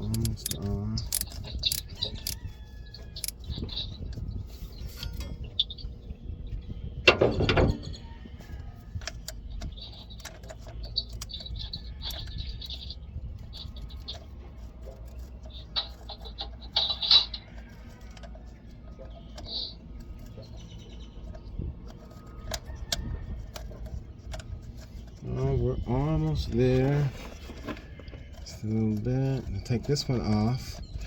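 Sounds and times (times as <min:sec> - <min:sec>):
socket wrench metal clicks: 0:00.0 - 0:02.4.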